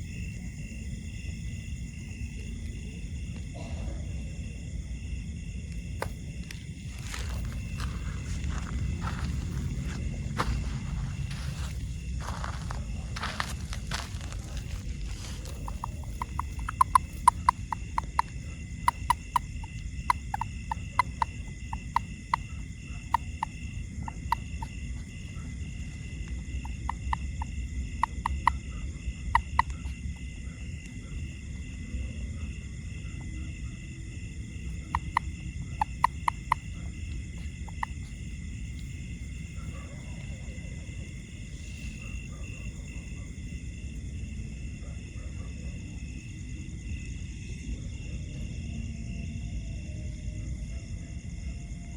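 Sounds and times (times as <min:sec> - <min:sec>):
frog clicking calls: 0:05.7 - 0:31.4, 0:33.0 - 0:43.2.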